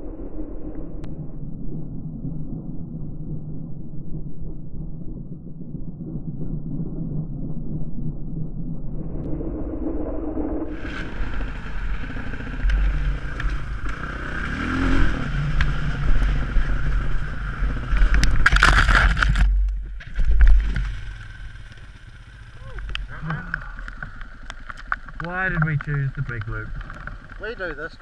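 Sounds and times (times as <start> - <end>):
dirt bike engine running: 10.7 - 27.8.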